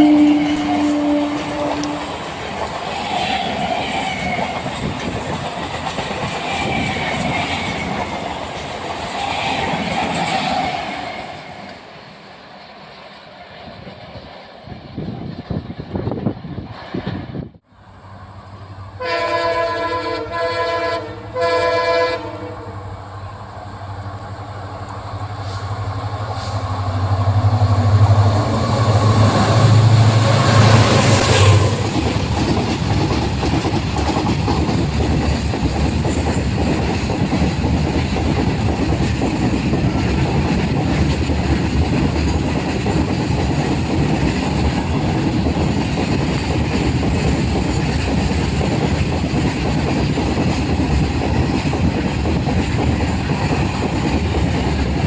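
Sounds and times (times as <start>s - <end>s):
train horn: 0.0s - 2.5s, 18.4s - 23.1s
train cars rolling on rails: 0.0s - 55.0s
locomotive rumble: 17.8s - 55.0s.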